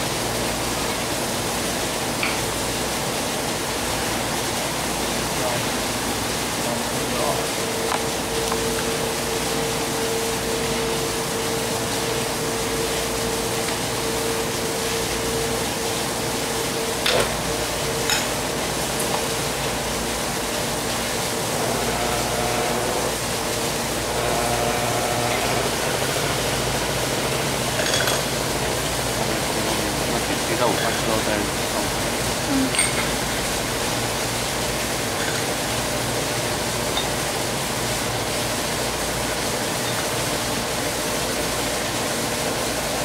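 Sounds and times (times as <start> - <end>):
small machine running: 6.7 - 34.4.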